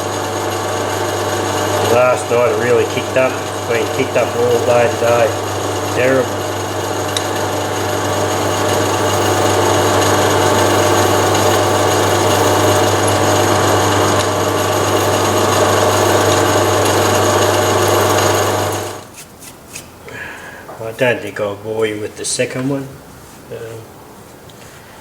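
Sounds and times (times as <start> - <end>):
metal lathe drilling metal: 0.0 - 19.1.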